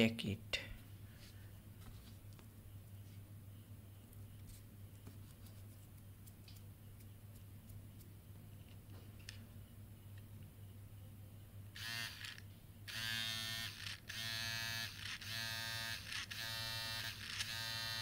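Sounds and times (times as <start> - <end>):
small motor whining: 11.8 - 18.0.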